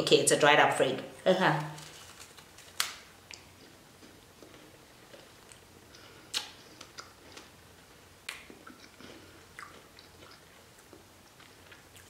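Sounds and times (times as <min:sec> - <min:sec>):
chewing crisp chip: 0:08.3 - 0:12.0.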